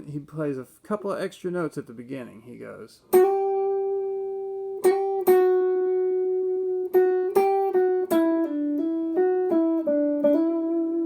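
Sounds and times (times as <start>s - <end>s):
guitar lead lick: 3.1s - 11.0s.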